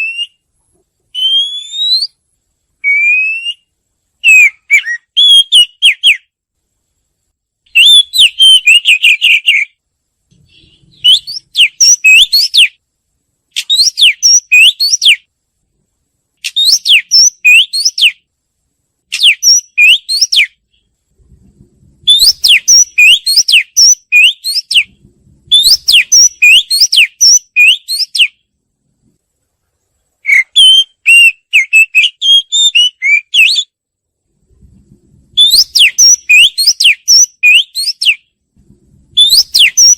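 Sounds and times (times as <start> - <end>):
bird singing whistled phrases: 0.0 - 0.4, 1.1 - 2.2, 2.8 - 6.3, 7.7 - 9.8, 10.5 - 12.8, 13.6 - 15.3, 16.4 - 18.2, 19.1 - 20.8, 22.1 - 28.4, 30.2 - 33.8, 35.4 - 38.2, 39.2 - 39.9.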